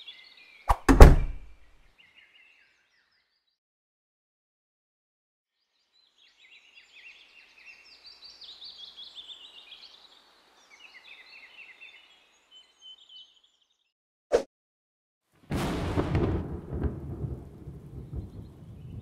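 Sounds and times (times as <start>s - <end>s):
sharp crack: 0.7s - 1.5s
birds twittering: 6.0s - 13.8s.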